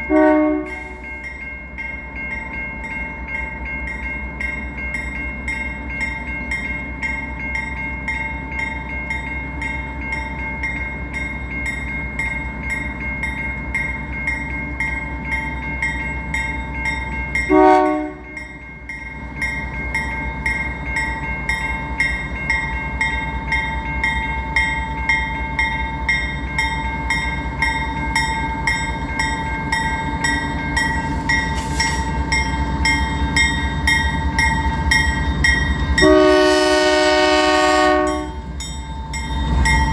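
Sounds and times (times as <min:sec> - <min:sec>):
locomotive horn blast: 0:00.0 - 0:01.0, 0:17.5 - 0:18.3, 0:36.0 - 0:38.4
freight train rumbling: 0:00.0 - 0:39.9
railroad crossing bells ringing: 0:00.0 - 0:39.9.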